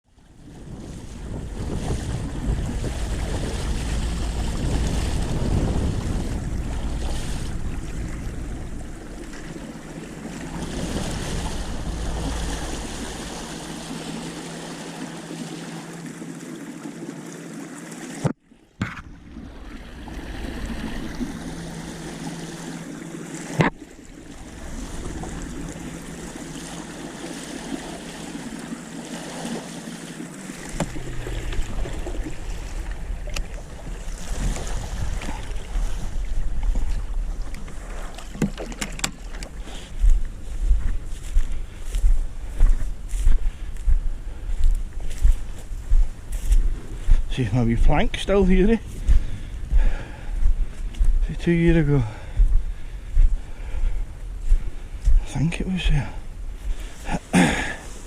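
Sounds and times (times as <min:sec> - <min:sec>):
water lapping: 0:00.0 - 0:58.0
wind buffeting microphone: 0:00.2 - 0:15.3, 0:19.1 - 0:58.0.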